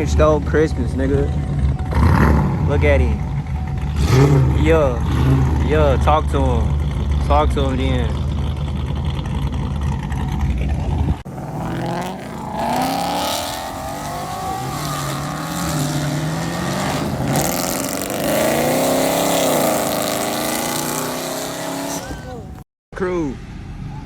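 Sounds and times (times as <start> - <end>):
car engine idling: 0.0 - 22.6
engine revving: 0.0 - 22.6.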